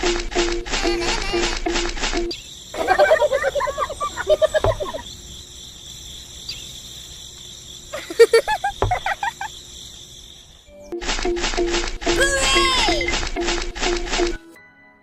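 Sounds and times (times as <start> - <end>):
insects chirring: 0.0 - 14.4
warbling pitch-bending calls: 2.3 - 5.2, 7.9 - 9.6.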